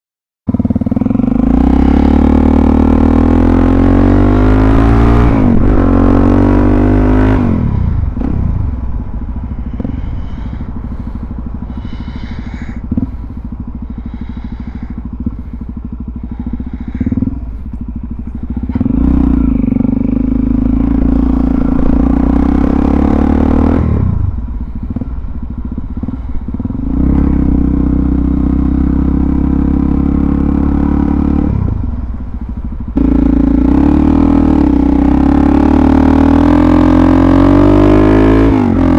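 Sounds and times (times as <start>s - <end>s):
motorcycle engine revving: 0.5s - 38.9s.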